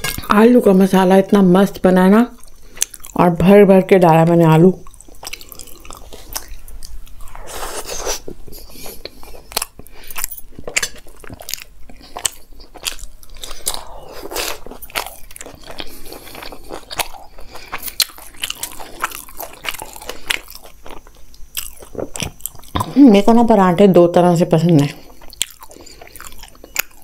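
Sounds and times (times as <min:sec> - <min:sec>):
close chewing with mouth clicks: 0:02.4 - 0:03.2, 0:04.8 - 0:23.0, 0:24.8 - 0:27.0.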